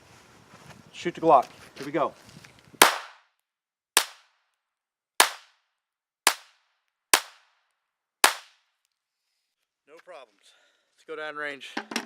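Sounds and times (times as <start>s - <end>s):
pistol shots: 2.8s - 3.2s, 4.0s - 4.2s, 5.2s - 5.5s, 6.3s - 6.5s, 7.2s - 7.5s, 8.2s - 8.6s.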